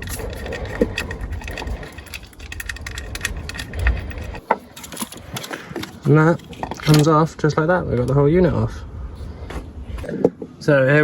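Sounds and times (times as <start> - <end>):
tools clicking and rattling: 0.0 - 7.3.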